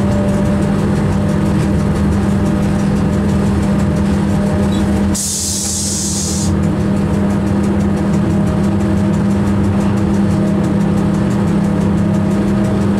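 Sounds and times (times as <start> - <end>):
train wheels rumbling on rails: 0.0 - 12.9
high hiss: 5.2 - 6.5.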